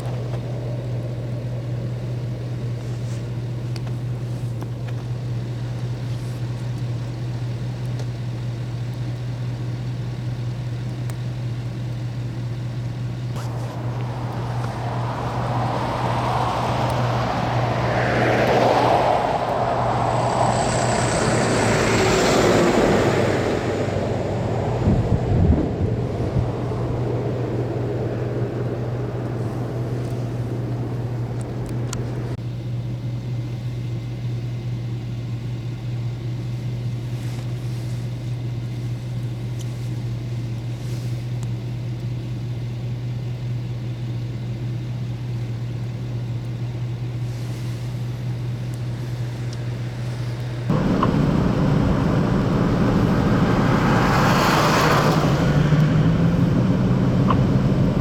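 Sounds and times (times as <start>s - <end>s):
motor vehicle engine droning: 0.0s - 58.0s.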